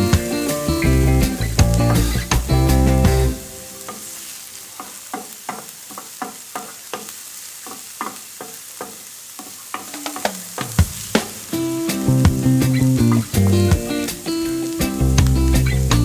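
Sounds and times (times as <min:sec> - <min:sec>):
background music: 0:00.0 - 0:04.2, 0:10.1 - 0:16.0
food sizzling in a pan: 0:00.0 - 0:16.0
utensil clicking against pan: 0:04.8 - 0:10.8.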